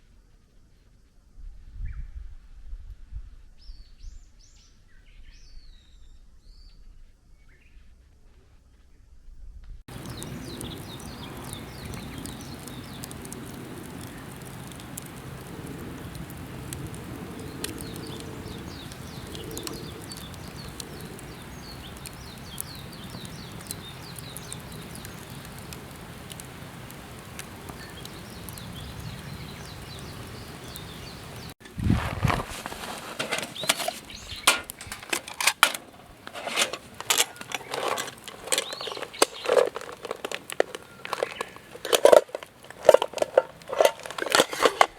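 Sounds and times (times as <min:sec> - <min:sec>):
bird chirps: 0:09.9 - 0:15.4, 0:17.3 - 0:26.0, 0:27.6 - 0:31.5, 0:33.4 - 0:35.4, 0:36.4 - 0:43.0
clicking and crinkling handling: 0:09.9 - 0:29.1, 0:30.7 - 0:44.9.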